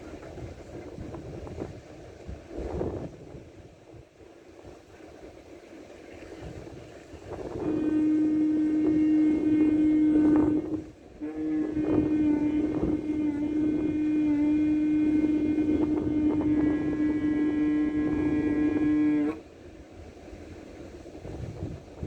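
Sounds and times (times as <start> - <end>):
horn blowing long notes: 7.4 - 19.4.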